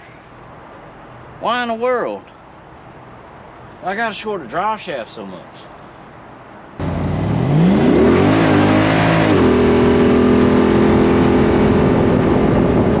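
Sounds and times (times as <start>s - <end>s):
engine revving: 6.8s - 13.0s.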